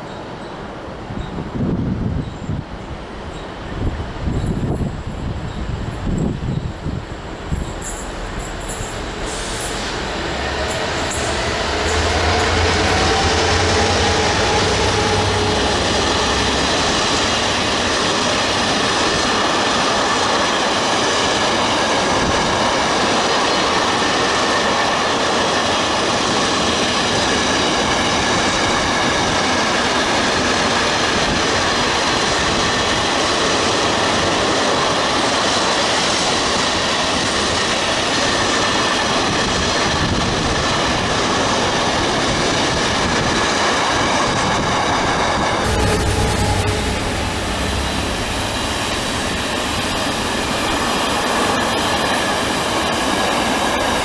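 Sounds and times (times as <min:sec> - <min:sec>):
diesel locomotive engine: 0:00.0 - 0:54.0
train wheels on rail: 0:00.0 - 0:54.0
high-pitched wheel squeal: 0:07.5 - 0:17.5, 0:45.6 - 0:51.0.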